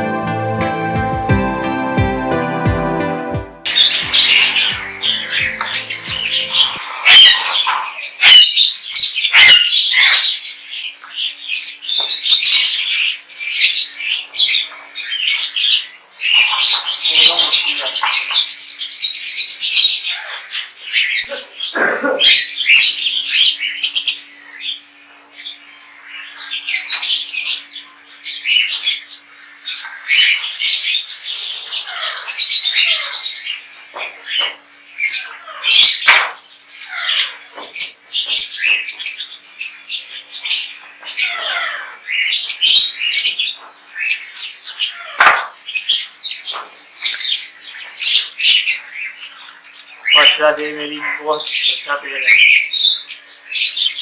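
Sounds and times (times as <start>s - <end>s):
parrots chirping and squawking: 3.6s - 54.0s.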